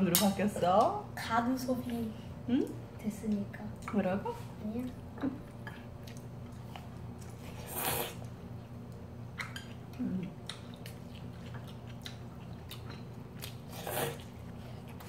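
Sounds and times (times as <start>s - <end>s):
wet chewing clicks: 8.2s - 15.0s
hummed murmur: 9.9s - 10.5s.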